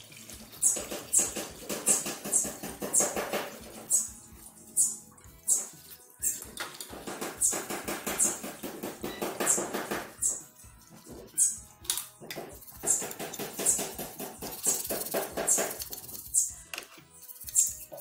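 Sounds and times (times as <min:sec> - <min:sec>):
cloth scrubbing metal: 0:12.6 - 0:16.3.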